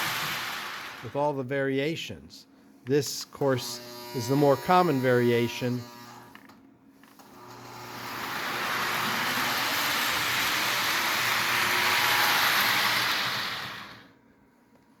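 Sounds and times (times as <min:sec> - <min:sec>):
toy train rolling on track: 0:08.0 - 0:14.1.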